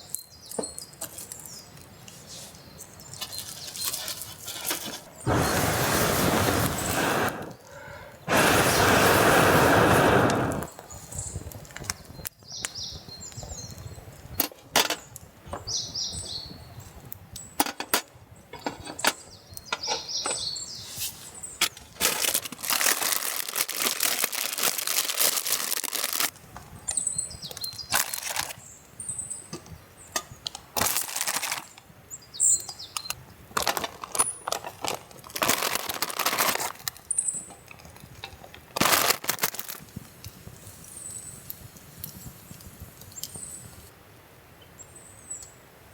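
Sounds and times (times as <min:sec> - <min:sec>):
rustling of things handled: 0:00.5 - 0:05.3, 0:20.8 - 0:28.6, 0:30.5 - 0:31.8, 0:33.0 - 0:43.9.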